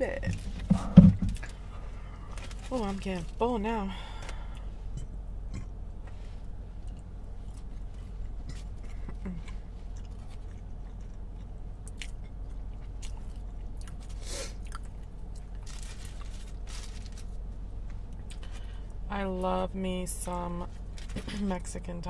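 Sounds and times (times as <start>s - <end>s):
person chewing: 4.2s - 17.2s, 17.8s - 18.9s.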